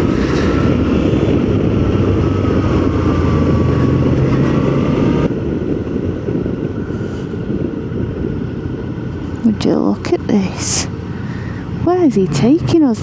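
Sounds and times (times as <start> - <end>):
motorcycle engine running: 0.0 - 13.0
riding wind rush: 0.0 - 13.0.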